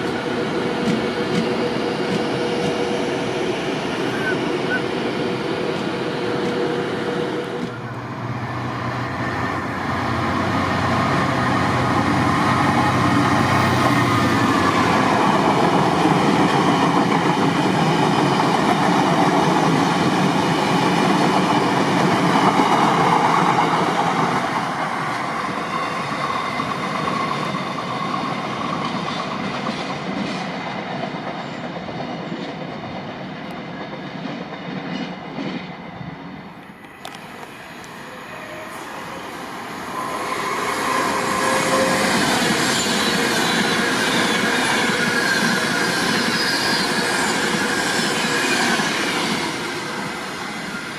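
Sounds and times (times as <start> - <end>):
train rumbling on rails: 0.0 - 50.9.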